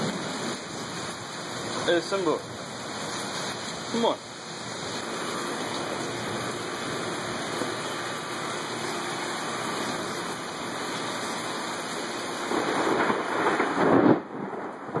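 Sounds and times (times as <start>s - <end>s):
heavy rain: 0.0s - 15.0s
thunder: 12.5s - 15.0s.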